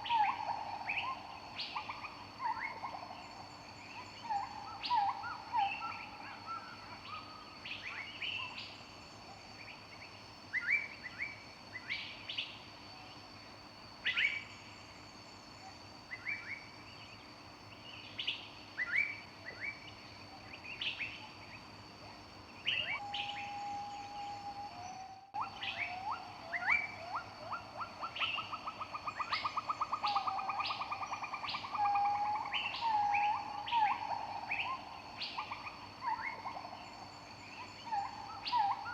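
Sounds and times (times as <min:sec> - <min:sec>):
songbirds chirping: 0:00.0 - 0:38.9
bird whistling steady note: 0:22.7 - 0:36.4.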